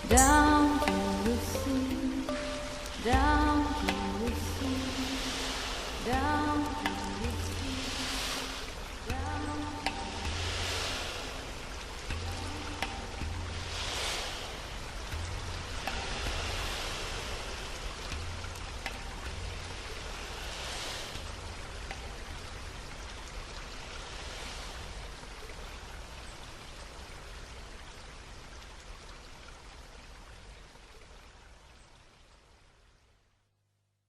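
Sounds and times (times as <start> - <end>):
steady rushing noise: 0.0 - 26.1.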